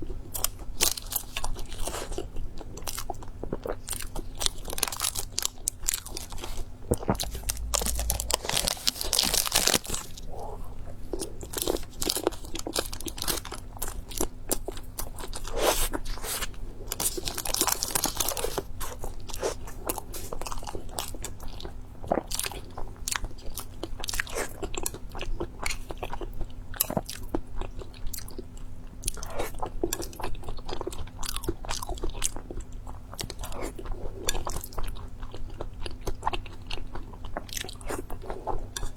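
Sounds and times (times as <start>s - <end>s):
crunchy chewing and biting: 0.3s - 21.2s.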